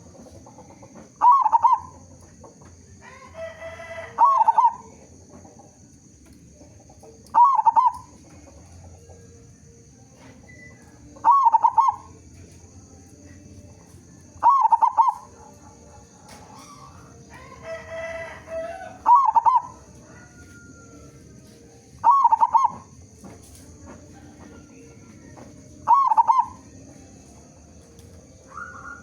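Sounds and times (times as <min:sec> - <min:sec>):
dove cooing: 0:00.0 - 0:05.4, 0:06.6 - 0:09.3, 0:10.4 - 0:12.3, 0:14.3 - 0:21.1, 0:22.0 - 0:23.1, 0:23.8 - 0:29.0.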